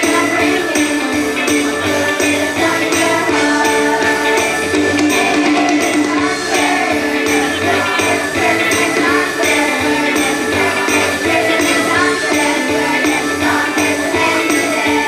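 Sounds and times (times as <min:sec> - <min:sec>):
chorus singing: 0:00.0 - 0:15.0
instrumental accompaniment: 0:00.0 - 0:15.0.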